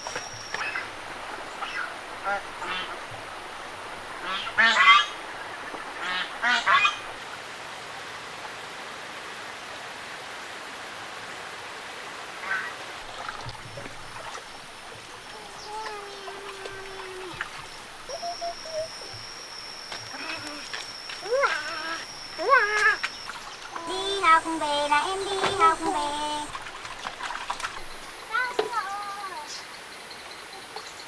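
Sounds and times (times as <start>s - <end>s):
geese or ducks calling: 0.0s - 7.2s, 13.8s - 28.1s
steady background hiss: 0.0s - 31.0s.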